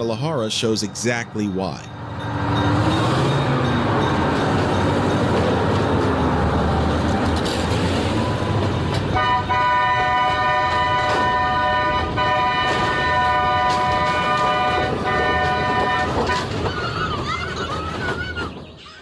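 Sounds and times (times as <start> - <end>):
moving train rumble: 0.0 - 19.0
train horn chord: 9.2 - 16.5.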